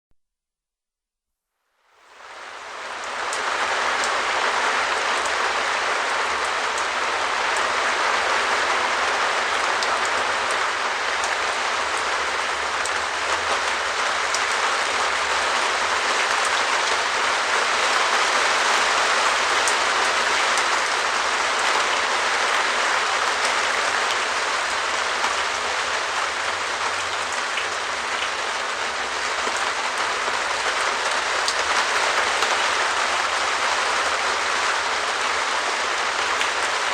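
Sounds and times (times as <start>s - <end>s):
rain on a plastic roof: 1.8s - 36.9s.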